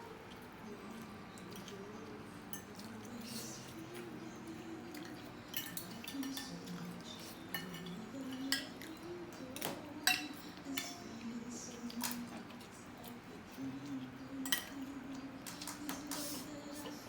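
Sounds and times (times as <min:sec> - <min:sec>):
cutlery clinking on plates: 0:02.5 - 0:04.1, 0:04.9 - 0:11.2, 0:13.9 - 0:17.0.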